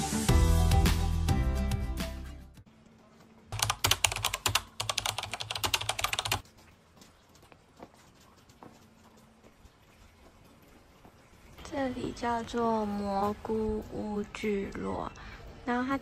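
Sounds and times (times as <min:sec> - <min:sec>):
background music: 0:00.0 - 0:02.6
computer keyboard typing: 0:03.5 - 0:06.4.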